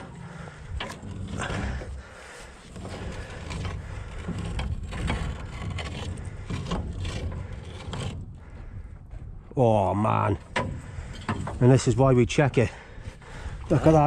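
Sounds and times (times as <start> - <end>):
winch rumbling: 0.0 - 14.0.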